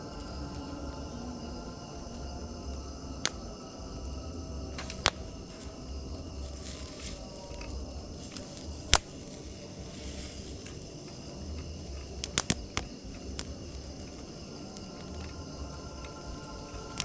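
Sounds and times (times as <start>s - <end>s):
faint insect-like chirring: 0.0s - 17.0s
steady low hum: 0.0s - 17.0s
sharp clicks and pops: 11.6s - 14.2s.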